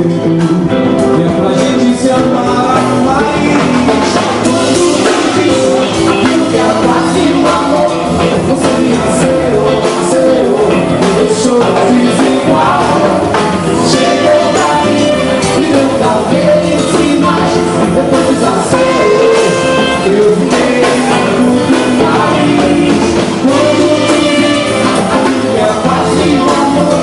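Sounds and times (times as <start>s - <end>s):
live band playing: 0.0s - 27.0s
person singing: 0.0s - 27.0s.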